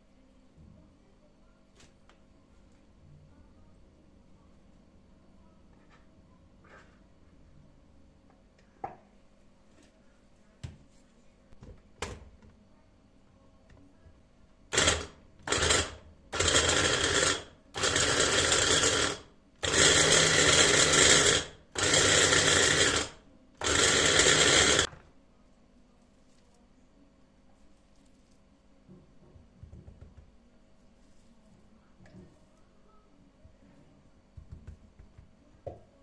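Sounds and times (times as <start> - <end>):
electric kitchen motor pulsing: 14.7 - 24.9.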